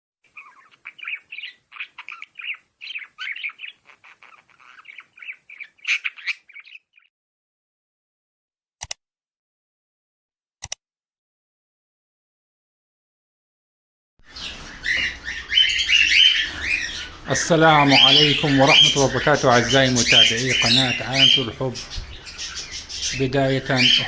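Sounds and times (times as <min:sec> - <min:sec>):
cockatiels chirping and squawking: 0:00.3 - 0:07.1, 0:14.3 - 0:24.0
sharp clicks: 0:08.8 - 0:09.0.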